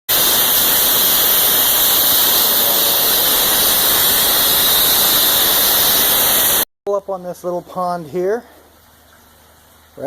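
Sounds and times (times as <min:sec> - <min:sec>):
loud rushing hiss: 0:00.1 - 0:06.7.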